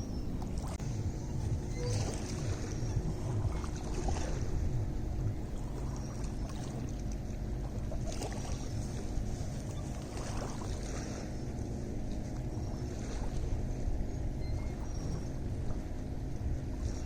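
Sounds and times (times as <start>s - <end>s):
low rumble: 0.0s - 17.0s
water lapping at shore: 0.0s - 17.0s
small splashes: 5.6s - 11.4s.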